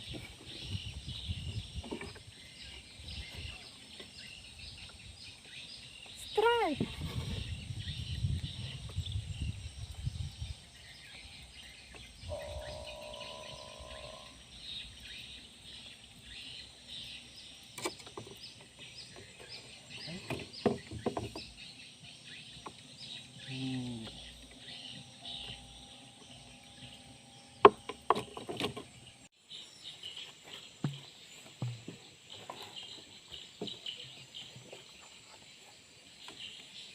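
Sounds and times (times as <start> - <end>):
held tone: 12.3 - 14.4.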